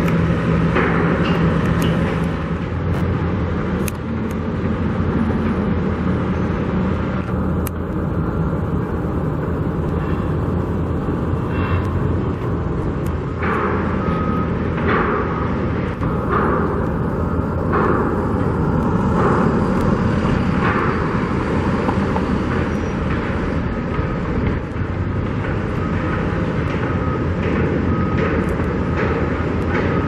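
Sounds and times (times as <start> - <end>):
vehicle engine and traffic hum: 0.0 - 30.0.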